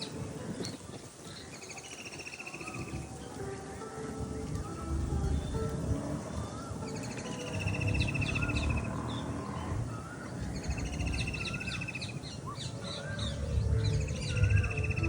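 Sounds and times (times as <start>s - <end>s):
whistled bird calls: 0.0s - 3.4s, 6.3s - 15.0s
bird chirps: 5.1s - 15.0s
fast bird trill: 6.5s - 15.0s.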